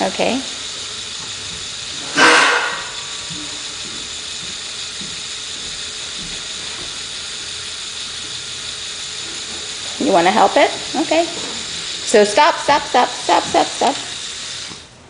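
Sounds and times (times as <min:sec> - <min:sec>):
toy motor gears whirring: 0:00.0 - 0:15.0
loud burst of noise: 0:02.0 - 0:03.4.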